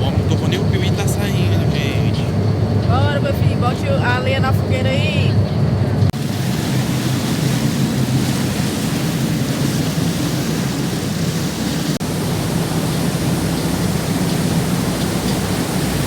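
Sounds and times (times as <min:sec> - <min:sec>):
boat engine drone: 0:00.0 - 0:16.0
wind and water rushing: 0:05.8 - 0:16.0.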